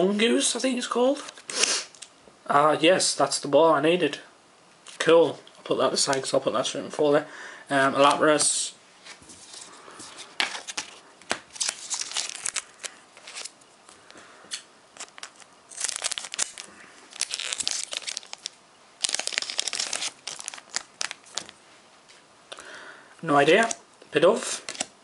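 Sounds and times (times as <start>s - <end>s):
foil wrapper crinkling and tearing: 11.5s - 13.6s, 15.0s - 21.6s.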